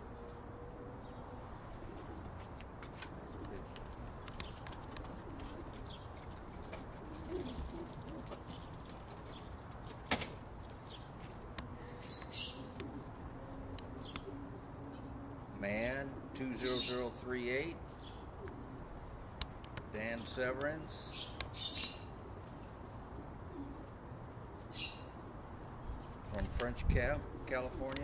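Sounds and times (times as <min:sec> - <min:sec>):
pigeons cooing: 0:00.0 - 0:02.5, 0:03.1 - 0:09.6, 0:11.8 - 0:19.0, 0:21.1 - 0:25.5
pigeons flapping wings: 0:03.6 - 0:09.3.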